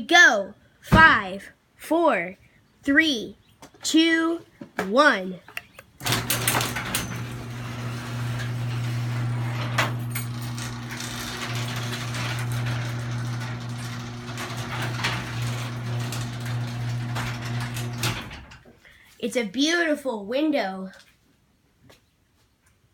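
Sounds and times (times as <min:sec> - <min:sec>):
garage door opener motor hum: 0:05.8 - 0:18.7
chain and door rattling: 0:06.0 - 0:18.6.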